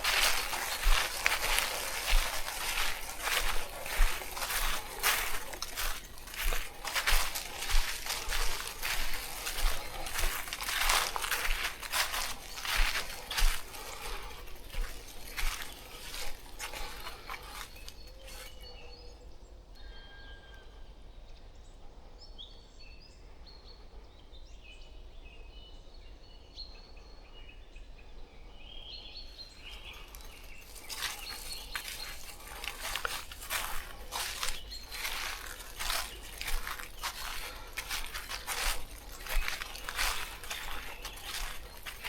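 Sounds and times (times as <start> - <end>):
crackling and crunching: 0.0 - 18.6, 29.8 - 42.0
small birds chirping: 0.0 - 19.5, 26.3 - 42.0.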